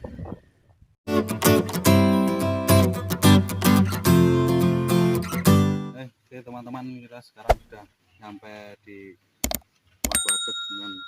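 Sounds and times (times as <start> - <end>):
acoustic guitar strumming: 1.1 - 6.0.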